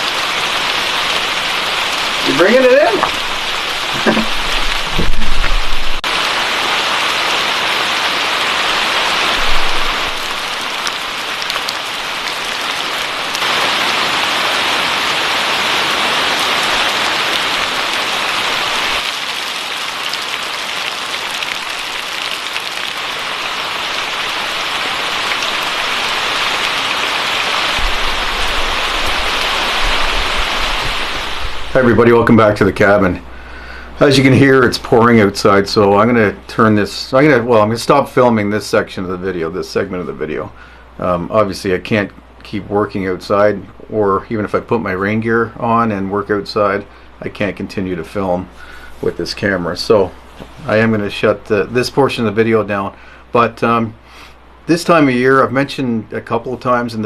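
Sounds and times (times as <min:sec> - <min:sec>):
heavy rain pouring: 0:00.0 - 0:57.0
short thump: 0:03.9 - 0:06.0.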